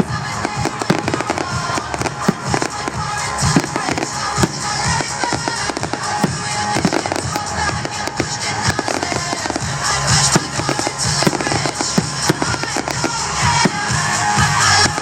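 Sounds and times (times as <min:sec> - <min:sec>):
fireworks bangs and crackling: 0:00.0 - 0:15.0
show music over loudspeakers: 0:00.0 - 0:15.0.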